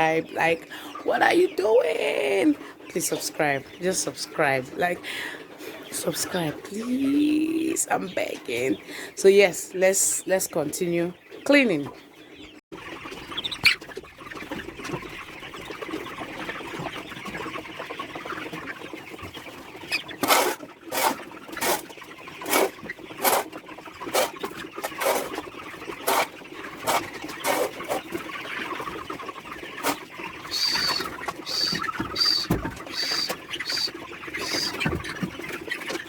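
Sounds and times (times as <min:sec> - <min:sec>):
chickens clucking: 0:00.0 - 0:36.0
floor scraping strokes: 0:24.1 - 0:25.3, 0:26.0 - 0:28.0
high peeps: 0:30.4 - 0:34.9.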